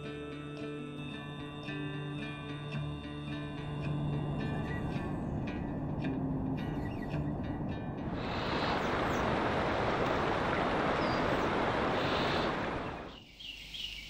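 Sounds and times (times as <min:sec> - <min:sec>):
plucked-string music: 0:00.0 - 0:08.1
flowing water rushing: 0:08.0 - 0:13.2
faint high bird chirps: 0:11.0 - 0:14.0.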